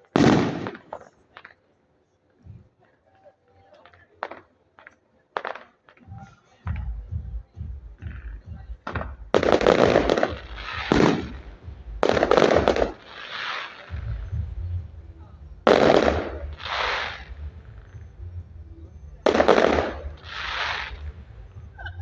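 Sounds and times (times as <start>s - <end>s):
fireworks cracking and bursting: 0.0s - 1.6s, 3.8s - 7.0s, 8.1s - 15.0s, 15.6s - 18.2s, 19.2s - 21.8s.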